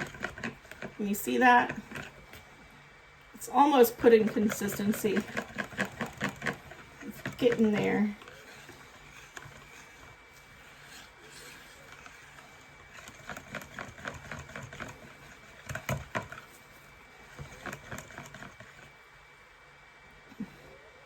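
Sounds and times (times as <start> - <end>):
utensil scraping mixing bowl: 0.0 - 2.8, 3.4 - 19.1
faint steady hum: 0.0 - 21.0.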